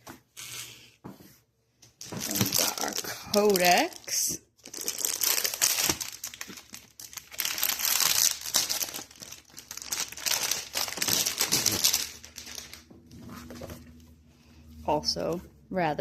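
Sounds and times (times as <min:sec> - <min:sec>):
packaging and paper crinkling: 0:02.0 - 0:13.9.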